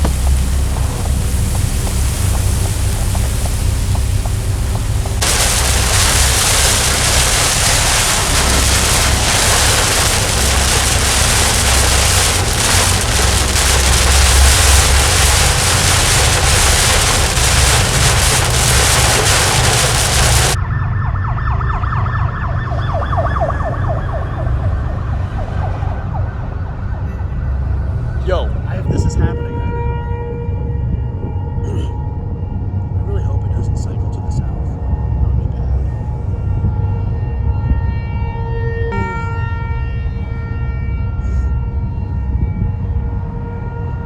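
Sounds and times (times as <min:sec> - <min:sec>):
wind rushing on microphone: 0:00.0 - 0:20.6, 0:27.8 - 0:29.9
emergency vehicle siren wailing: 0:05.0 - 0:27.6.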